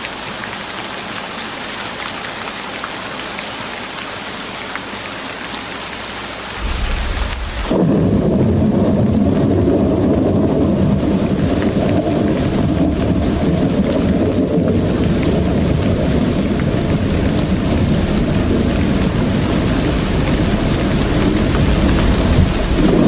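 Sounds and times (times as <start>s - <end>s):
rain hiss: 0.0s - 8.4s
deep low rumbling: 6.6s - 8.7s.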